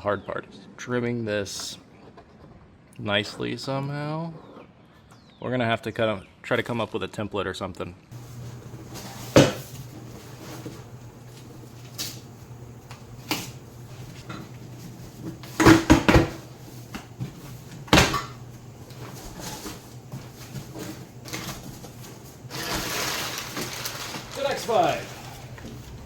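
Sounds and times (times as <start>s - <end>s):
steady low hum: 8.1s - 22.5s
packaging rustling: 16.3s - 26.0s.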